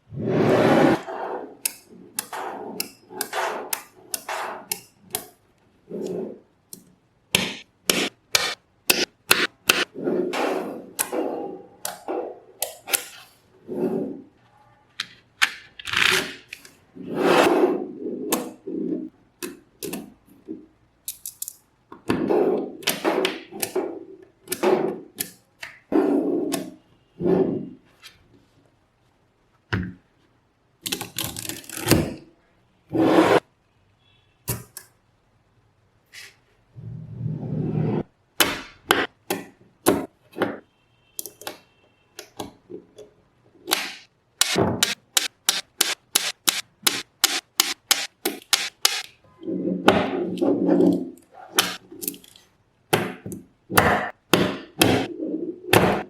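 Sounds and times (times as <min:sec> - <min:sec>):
magnetic balls clicking together: 0:43.7 - 0:49.2.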